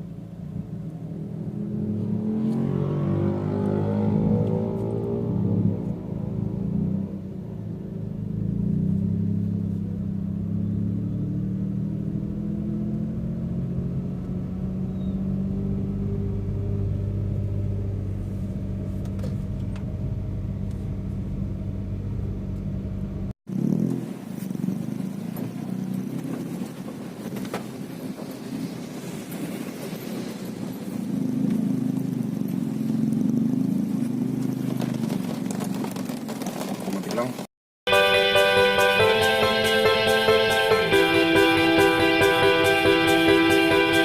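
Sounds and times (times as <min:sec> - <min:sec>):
car engine drone: 0:00.0 - 0:44.0.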